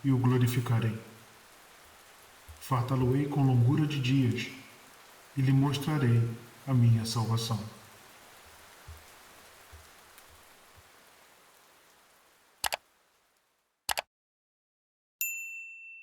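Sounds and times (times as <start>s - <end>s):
steady rain: 0.0s - 13.8s
sharp clicks: 12.6s - 12.8s, 13.9s - 14.1s
bell-like ding: 15.2s - 16.0s.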